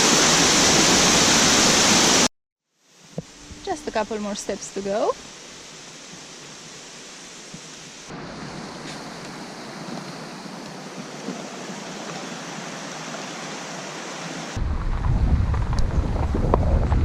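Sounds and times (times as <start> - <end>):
waterfall rushing: 0.0 - 2.3, 3.2 - 14.6
loud low rumble: 14.6 - 17.0.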